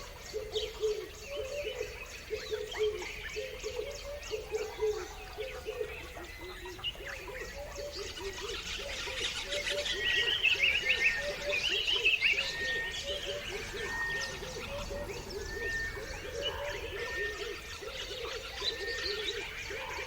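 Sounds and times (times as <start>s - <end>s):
birds chirping and calling: 0.0s - 20.0s.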